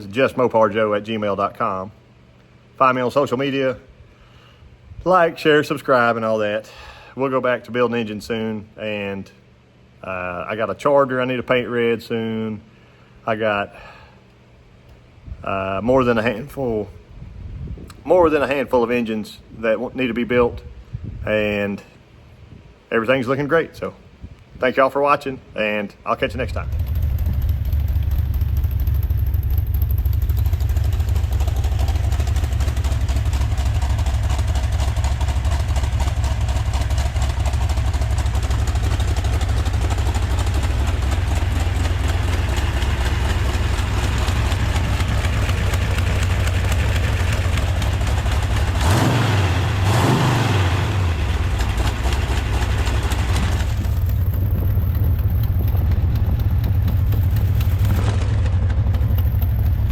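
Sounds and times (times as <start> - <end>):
engine idling and revving: 26.3 - 59.9.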